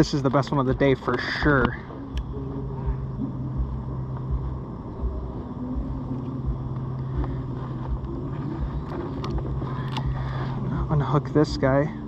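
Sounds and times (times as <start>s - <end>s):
low engine hum: 0.0s - 12.0s
low thumps: 0.7s - 11.6s.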